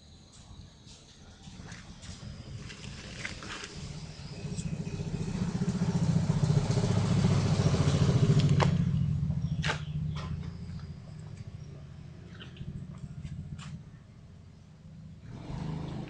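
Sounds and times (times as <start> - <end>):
scooter two-stroke engine running: 2.4 - 16.0.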